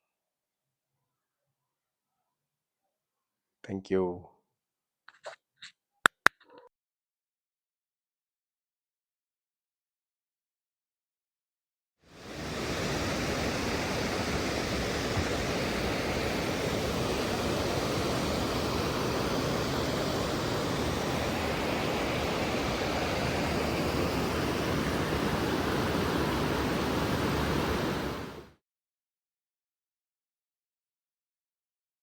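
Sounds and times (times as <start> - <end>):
steady rushing noise: 12.2 - 28.5.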